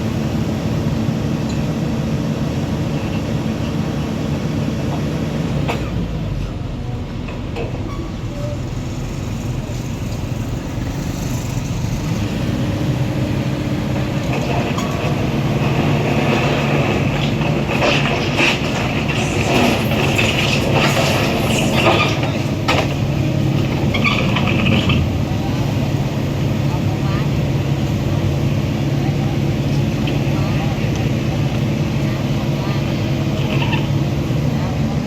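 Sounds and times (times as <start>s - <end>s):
heavy machinery engine drone: 0.0s - 35.0s
metallic squealing and clanking: 7.8s - 10.4s, 17.9s - 23.0s, 23.7s - 25.1s.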